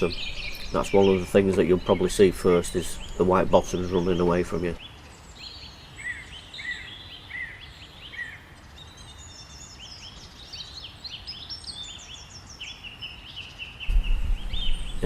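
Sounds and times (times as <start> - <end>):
songbirds chirping and trilling: 0.0 - 15.0
faint low rumble: 13.9 - 15.0.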